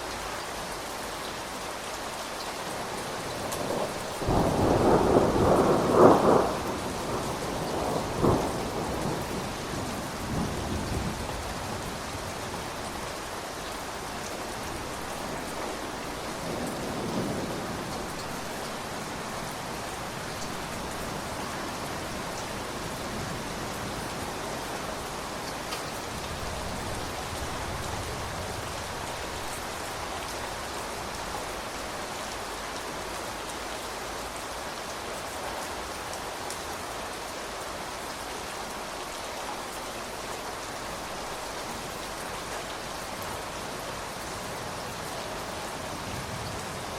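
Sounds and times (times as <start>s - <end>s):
steady rain falling: 0.0s - 46.9s
thunder rumbling: 3.3s - 12.3s.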